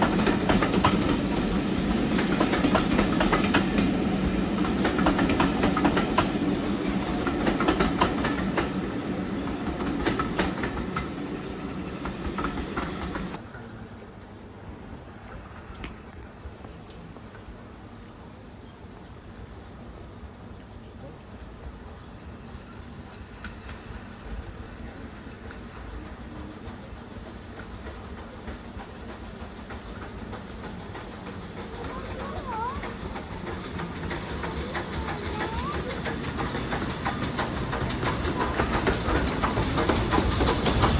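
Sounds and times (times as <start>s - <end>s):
train wheels clicking on rails: 0.0s - 20.8s, 22.1s - 40.9s
train rumble: 0.0s - 40.9s.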